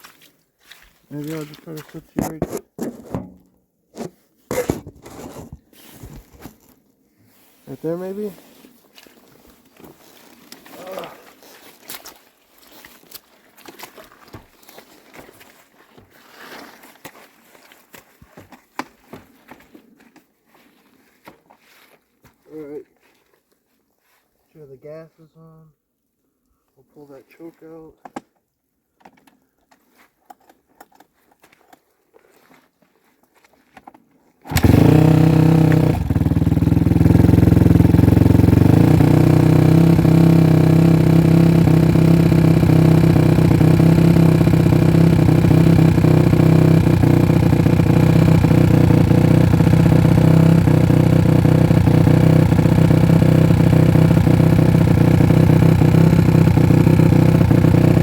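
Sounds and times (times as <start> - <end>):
kick starter: 2.1 - 6.6, 34.4 - 58.0
dirt bike engine idling: 34.5 - 58.0.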